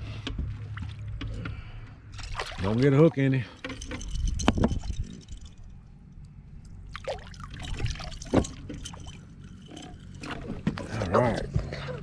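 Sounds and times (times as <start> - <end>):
water splashing and dripping: 2.1 - 3.4, 6.9 - 9.3.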